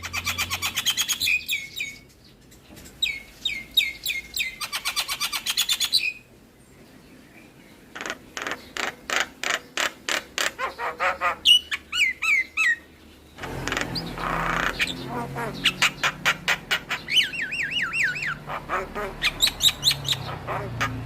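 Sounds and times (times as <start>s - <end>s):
bird whistles and chattering: 0.0s - 2.0s, 3.0s - 6.2s, 10.4s - 12.9s, 13.7s - 21.0s
bird hoarse call: 7.9s - 21.0s.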